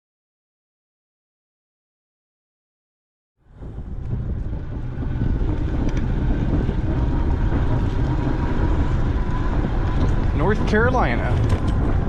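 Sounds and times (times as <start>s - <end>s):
wind buffeting microphone: 3.4s - 12.0s.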